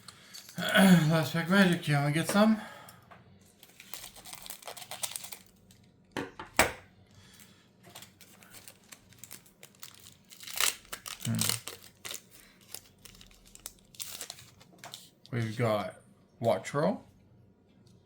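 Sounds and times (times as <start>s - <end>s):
foil wrapper tearing and crinkling: 3.6s - 5.8s, 7.4s - 15.3s
sharp foil crackle: 3.6s - 5.8s, 7.2s - 15.2s.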